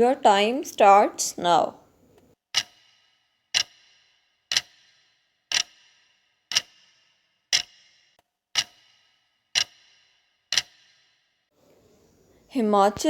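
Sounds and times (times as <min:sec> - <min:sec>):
clock ticks with ringing tail: 0:02.5 - 0:11.4.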